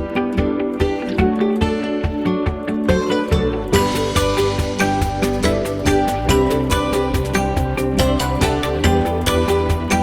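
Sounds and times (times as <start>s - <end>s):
plucked acoustic guitar music: 0.0s - 10.0s.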